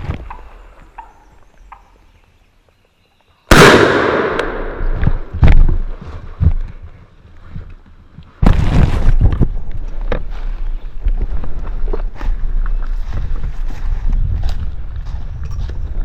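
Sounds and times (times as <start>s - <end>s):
shotgun blast: 3.5s - 5.3s.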